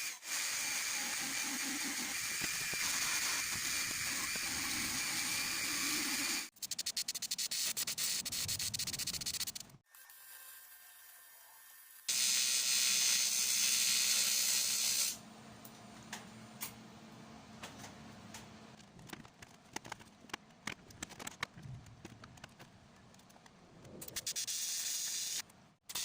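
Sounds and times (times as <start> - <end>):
faint clicks and ticks: 18.3 - 24.3.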